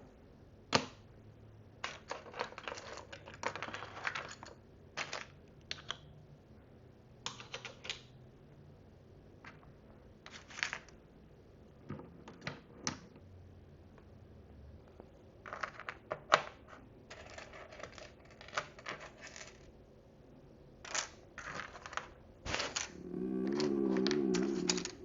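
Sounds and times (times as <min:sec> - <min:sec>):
plastic pieces clicking and tapping: 0:01.8 - 0:06.1, 0:07.2 - 0:08.1, 0:15.5 - 0:19.7, 0:20.8 - 0:25.0.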